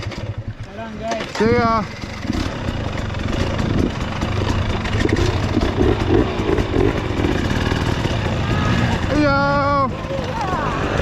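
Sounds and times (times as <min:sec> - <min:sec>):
motorcycle engine running: 0:00.0 - 0:11.0
knocks and rattles: 0:01.0 - 0:09.0.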